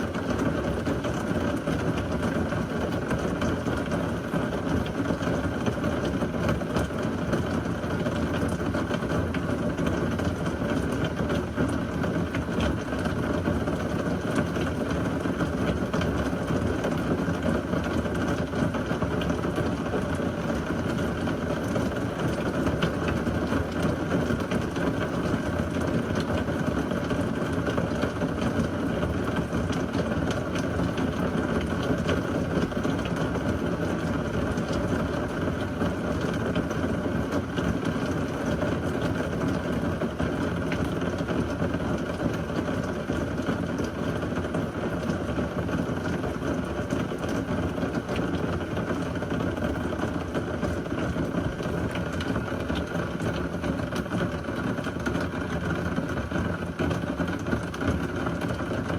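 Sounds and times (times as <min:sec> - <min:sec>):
heavy rain: 0:00.0 - 0:58.9.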